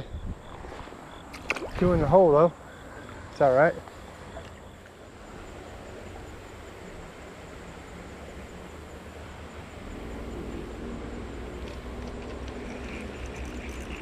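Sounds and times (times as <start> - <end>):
low engine-like drone: 2.4 - 14.0
creek water flowing: 4.2 - 14.0.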